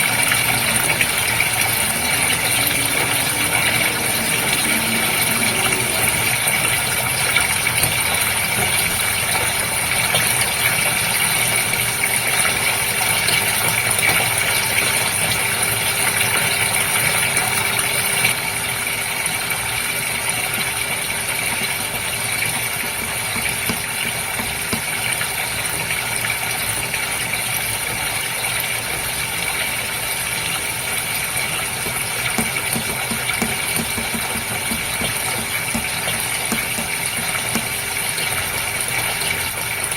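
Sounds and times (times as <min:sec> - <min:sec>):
water rushing: 0:00.0 - 0:18.6, 0:20.2 - 0:39.9
aquarium pump hum: 0:00.0 - 0:39.9.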